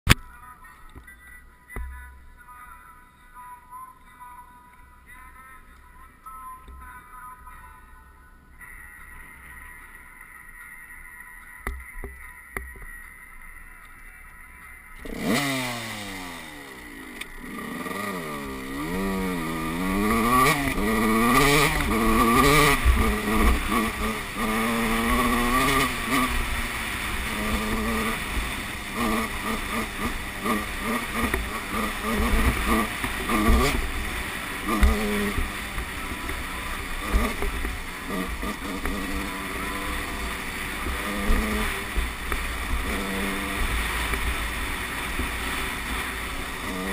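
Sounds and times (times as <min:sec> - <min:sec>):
motocross bike engine revving: 0:15.0 - 0:46.9.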